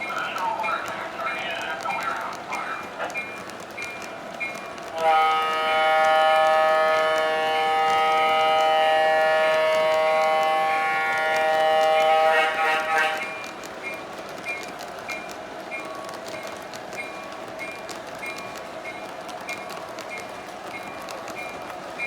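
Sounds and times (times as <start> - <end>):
faint clicks: 0.0 - 8.7, 13.1 - 22.0
train horn chord: 4.9 - 13.4.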